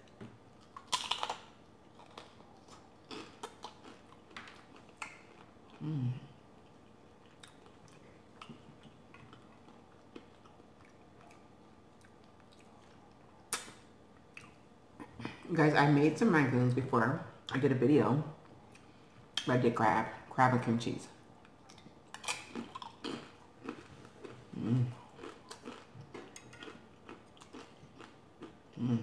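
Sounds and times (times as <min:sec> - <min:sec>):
crunchy chewing: 0:00.0 - 0:06.0, 0:06.6 - 0:14.6, 0:21.4 - 0:29.0
person humming: 0:05.8 - 0:06.4, 0:24.5 - 0:25.0, 0:28.8 - 0:29.0.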